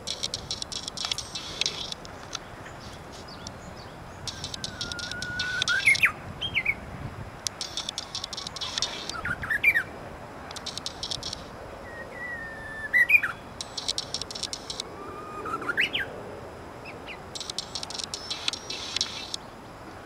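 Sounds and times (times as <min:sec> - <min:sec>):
rapid dry bird ticking: 0:00.0 - 0:06.2, 0:07.4 - 0:11.8, 0:13.0 - 0:15.0, 0:17.1 - 0:19.5
bird singing whistled song: 0:03.3 - 0:06.8, 0:07.6 - 0:09.9, 0:11.8 - 0:16.1, 0:17.4 - 0:19.4.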